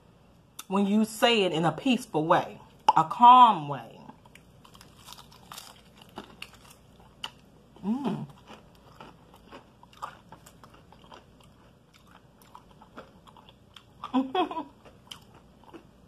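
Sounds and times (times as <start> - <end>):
breading crunching: 4.1 - 16.0.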